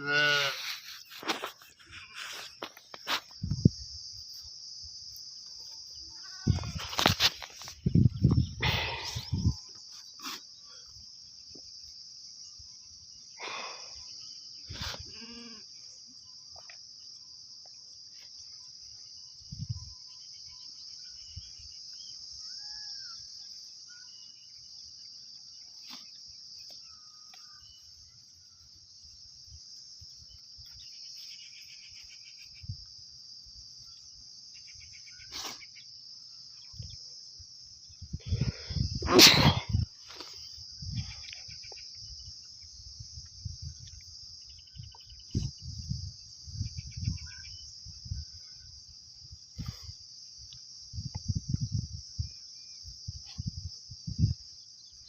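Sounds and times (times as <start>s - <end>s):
goat bleating: 0.0s - 0.6s.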